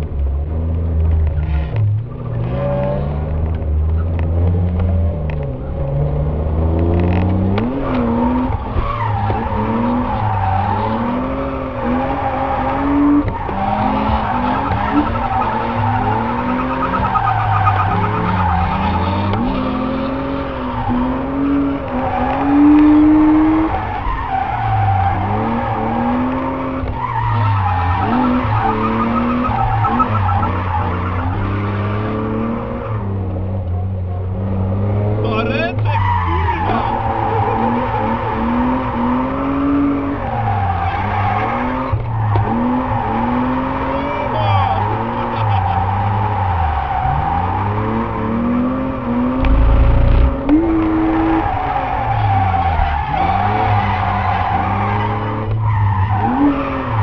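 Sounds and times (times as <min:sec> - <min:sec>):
car engine revving: 0:00.0 - 0:57.0
tyre squeal: 0:35.6 - 0:57.0.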